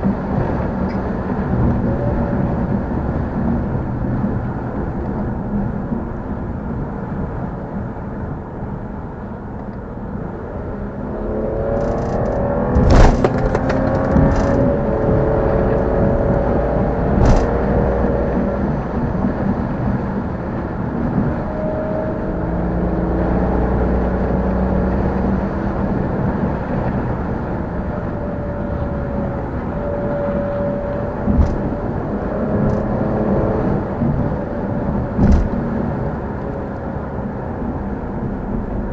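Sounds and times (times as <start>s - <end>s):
car engine accelerating: 9.6s - 38.9s
exhaust cracks: 11.8s - 14.9s.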